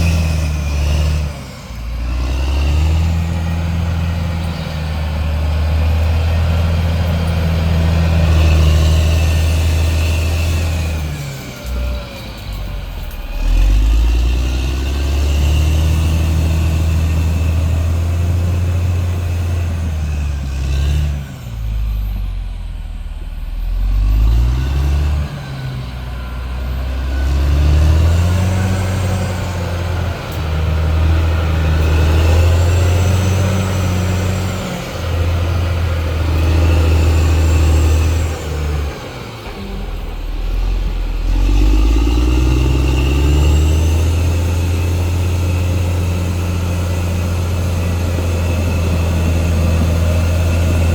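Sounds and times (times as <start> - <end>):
bulldozer diesel engine under load: 0.0 - 50.9.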